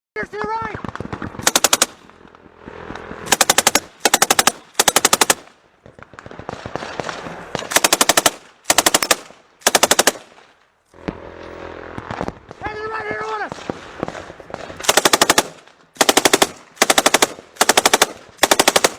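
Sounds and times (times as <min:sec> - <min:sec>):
automatic gunfire bursts: 0:00.8 - 0:02.0, 0:03.2 - 0:05.5, 0:06.4 - 0:10.4, 0:14.1 - 0:18.9.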